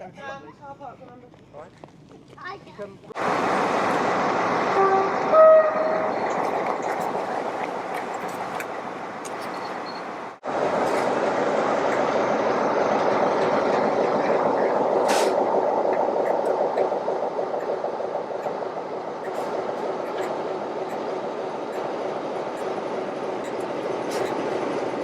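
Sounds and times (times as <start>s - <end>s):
train rumbling: 1.2s - 25.0s
short sharp hiss: 15.0s - 15.4s.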